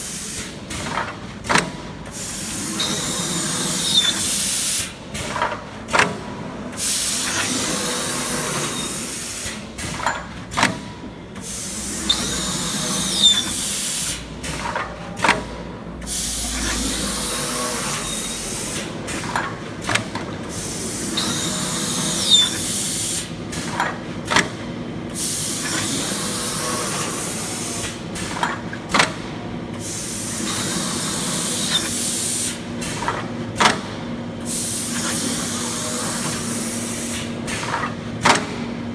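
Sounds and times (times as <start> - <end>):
metal cutting machine hiss: 2.2 - 4.9, 16.1 - 18.9, 25.2 - 28.3, 29.8 - 32.6, 34.5 - 37.3.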